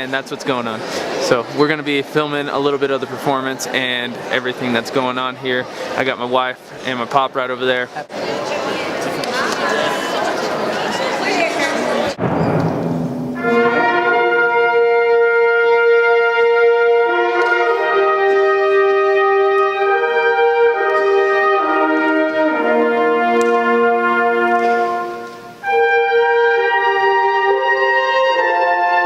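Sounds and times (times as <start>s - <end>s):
brass ensemble playing held chords: 13.2s - 29.0s.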